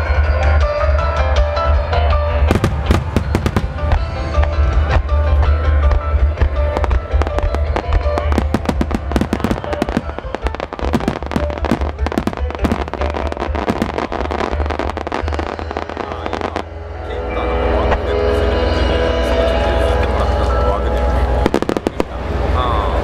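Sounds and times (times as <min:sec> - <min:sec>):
music over loudspeakers: 0:00.0 - 0:22.8
fireworks bursting: 0:02.5 - 0:05.1, 0:06.2 - 0:16.7, 0:21.4 - 0:22.6.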